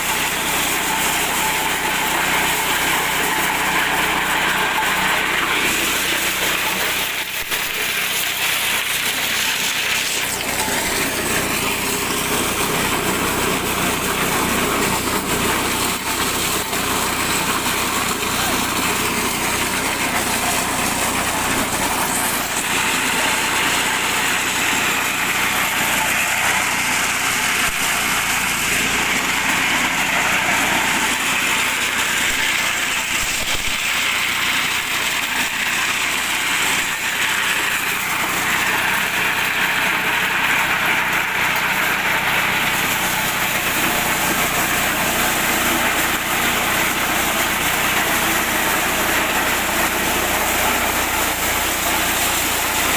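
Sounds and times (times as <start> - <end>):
corn sheller rasping: 0.0 - 52.9.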